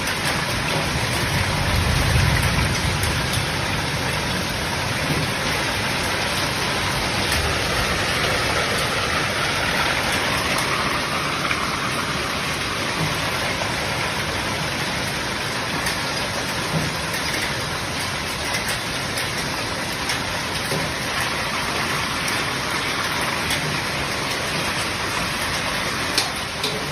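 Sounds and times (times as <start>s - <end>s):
drops or hailstones ticking: 0.0s - 26.9s
heavy rain falling: 0.0s - 26.9s.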